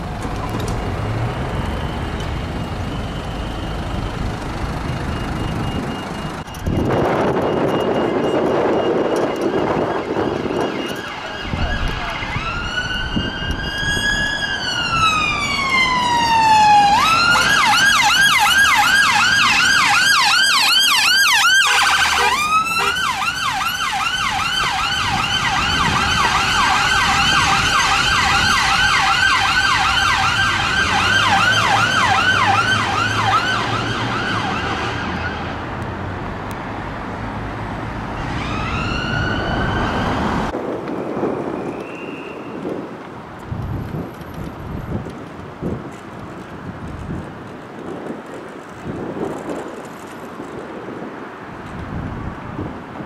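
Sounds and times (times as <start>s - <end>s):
emergency vehicle siren: 0.0s - 35.8s, 37.8s - 42.9s.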